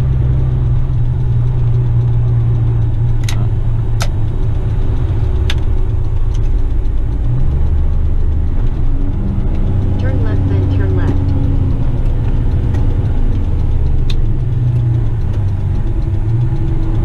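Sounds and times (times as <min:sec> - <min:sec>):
diesel truck engine drone: 0:00.0 - 0:17.0
sharp clicks and rattles: 0:00.0 - 0:17.0.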